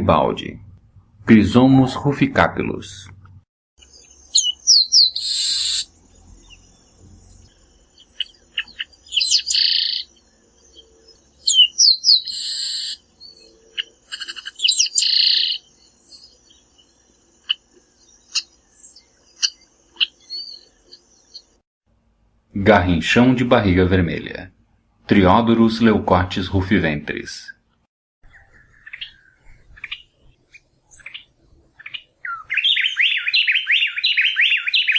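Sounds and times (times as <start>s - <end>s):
bird chips: 3.8s - 21.5s
bird song whistles and buzz: 3.8s - 21.6s, 28.2s - 34.9s.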